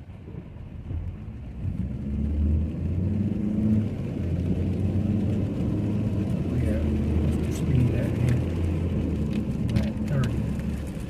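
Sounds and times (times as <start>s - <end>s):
road noise: 0.0s - 11.0s
car engine accelerating: 0.3s - 11.0s.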